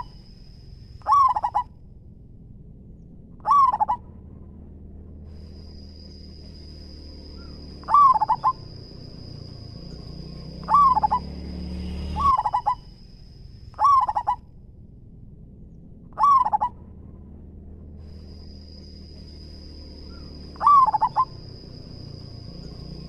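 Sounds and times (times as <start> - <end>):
dove cooing: 0.0 - 0.2, 1.0 - 1.7, 3.4 - 4.0, 7.4 - 11.4, 12.1 - 12.9, 13.8 - 14.4, 16.2 - 16.8, 20.1 - 23.0
steady high-pitched whine: 0.0 - 23.0.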